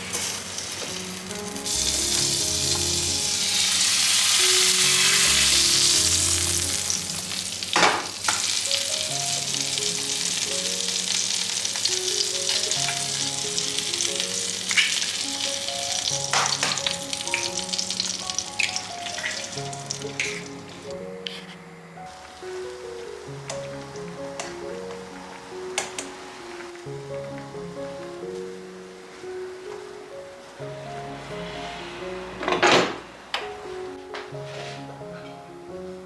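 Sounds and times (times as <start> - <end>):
food sizzling in a pan: 0.0 - 20.9, 22.1 - 29.6.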